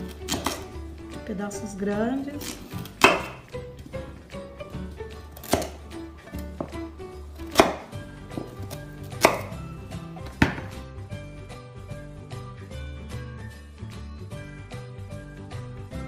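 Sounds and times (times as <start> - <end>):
soft background music: 0.0 - 16.0
knife chopping on wooden board: 0.1 - 0.7, 2.4 - 3.5, 5.4 - 9.6, 10.2 - 10.8.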